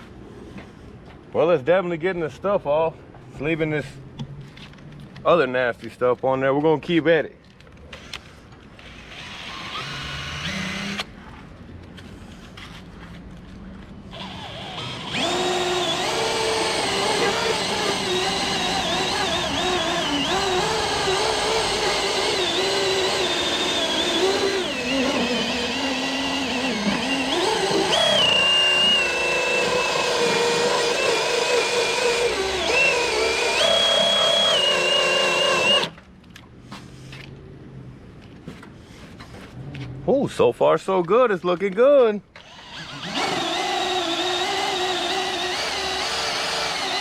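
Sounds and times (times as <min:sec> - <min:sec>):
drill whine with eraser wheel: 0:09.0 - 0:11.1, 0:14.1 - 0:35.9, 0:42.4 - 0:47.0.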